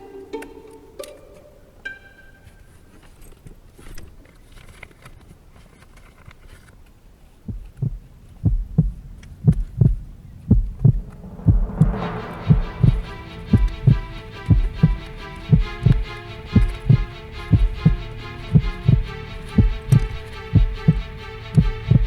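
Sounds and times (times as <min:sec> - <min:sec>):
heartbeat thumps: 0:07.5 - 0:22.0.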